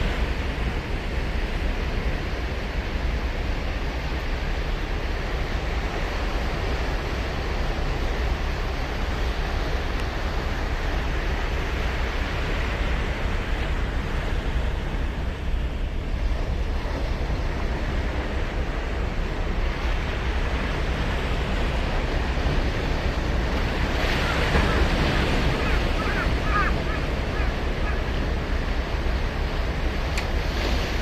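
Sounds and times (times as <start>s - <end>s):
ocean surf breaking: 0.0s - 31.0s.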